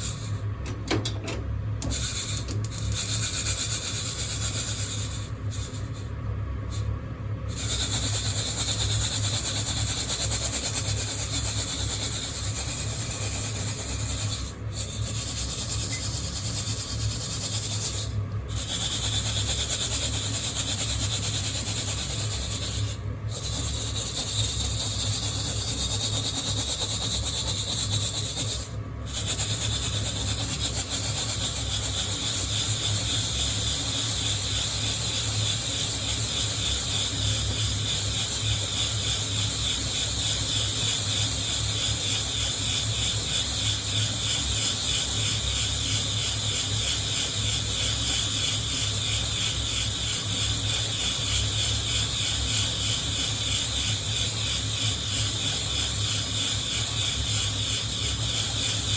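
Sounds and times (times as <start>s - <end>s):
coffee beans rustling in mesh roaster: 0.0s - 58.9s.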